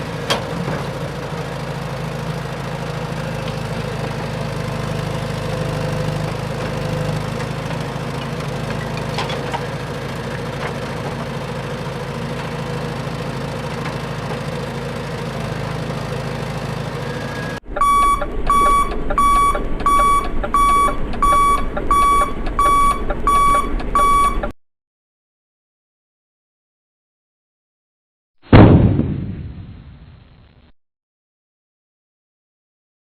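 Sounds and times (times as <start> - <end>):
vehicle engine running: 0.0 - 24.5
electronic beeping alarm: 17.1 - 24.6.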